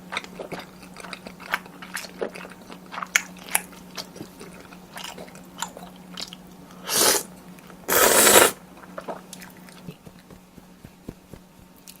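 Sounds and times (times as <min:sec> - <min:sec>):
soft chewing and mouth clicks: 0:00.0 - 0:06.8, 0:08.8 - 0:12.0
faint electrical hum: 0:00.0 - 0:12.0
hissing bursts: 0:07.9 - 0:08.6.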